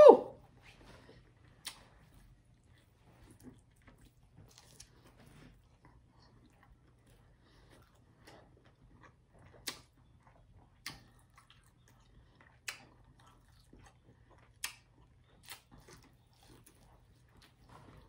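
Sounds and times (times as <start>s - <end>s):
close chewing: 0.7s - 18.0s
wet mouth clicks: 1.6s - 1.8s, 9.6s - 9.9s, 12.6s - 13.0s, 14.6s - 14.9s.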